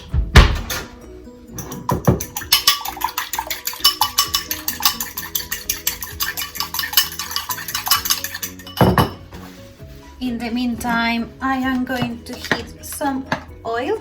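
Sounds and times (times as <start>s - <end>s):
background music: 0.0s - 14.0s
egg whisked in a bowl: 1.7s - 8.9s.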